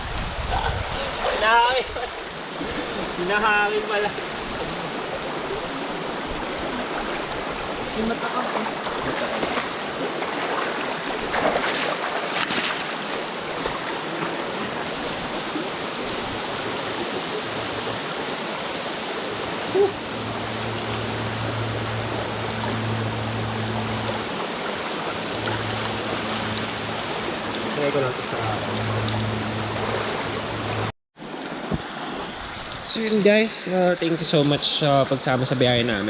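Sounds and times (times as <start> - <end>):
stream water rushing: 0.0 - 36.0
low steady hum: 19.7 - 30.9.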